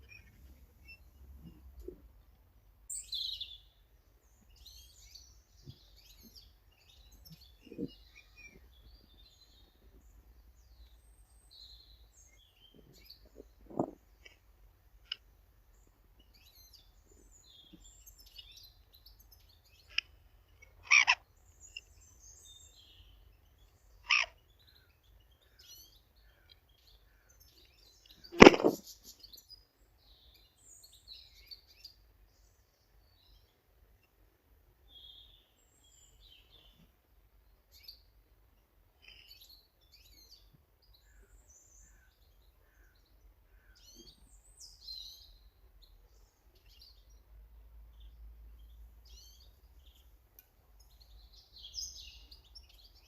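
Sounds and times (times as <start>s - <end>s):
small birds chirping: 0.0s - 53.0s
sharp knocks: 28.4s - 28.8s.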